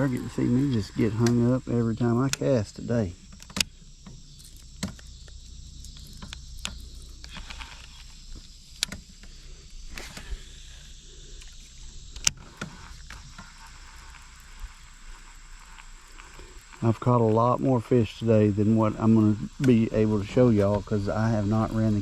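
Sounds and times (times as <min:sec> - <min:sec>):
insects droning: 0:00.0 - 0:22.0
sharp clicks and knocks: 0:03.3 - 0:09.4.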